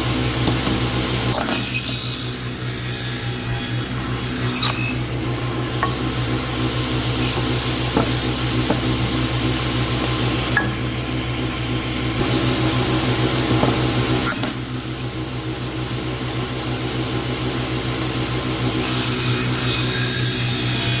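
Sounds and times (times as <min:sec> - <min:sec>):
power tool motor humming: 0:00.5 - 0:15.2.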